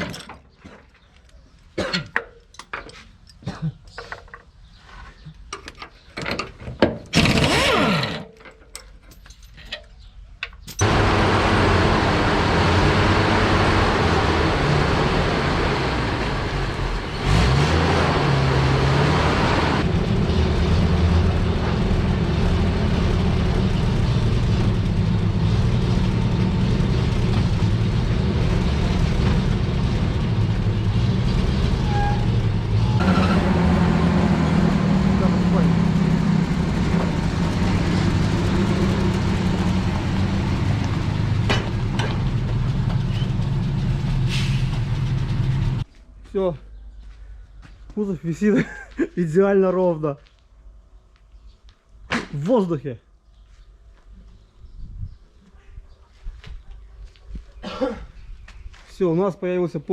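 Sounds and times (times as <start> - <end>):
spanners clinking on bolts: 1.9 - 4.5, 5.5 - 10.9
heavy engine running: 10.8 - 45.9.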